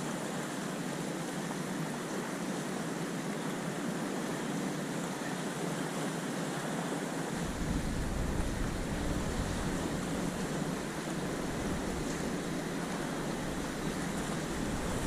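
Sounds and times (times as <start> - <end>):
sea waves on shore: 0.0 - 15.0
wind rumble on microphone: 7.4 - 15.0.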